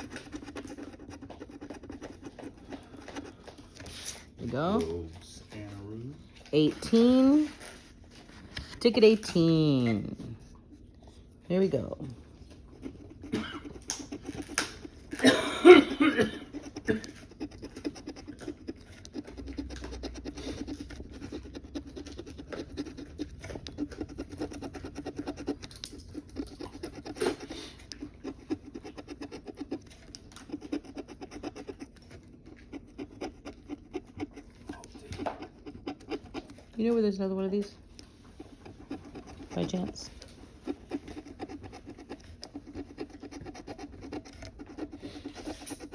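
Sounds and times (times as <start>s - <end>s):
lottery ticket being scratched: 12.7s - 37.3s, 38.4s - 45.9s.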